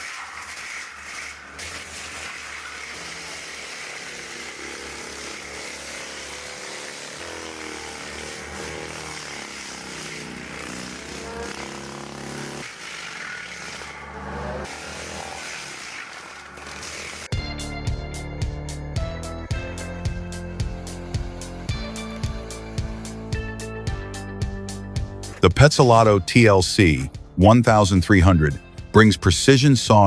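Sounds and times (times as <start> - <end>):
log loader engine under load: 0.0 - 17.5, 19.1 - 24.2.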